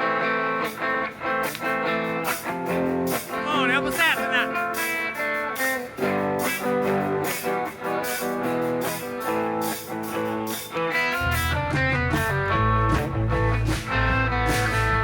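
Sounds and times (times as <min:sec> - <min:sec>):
guitars playing chords: 0:00.0 - 0:15.0
low bass part: 0:11.4 - 0:15.0.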